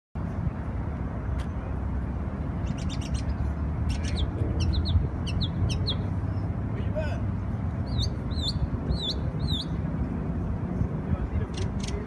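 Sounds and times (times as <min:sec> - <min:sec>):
small songbird chirping: 0:02.6 - 0:06.5, 0:07.8 - 0:09.8.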